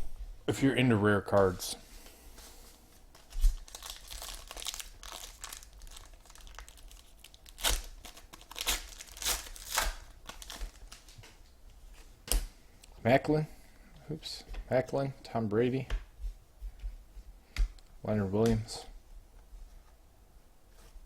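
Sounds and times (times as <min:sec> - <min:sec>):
wrappers tearing and crinkling: 0:03.2 - 0:11.2.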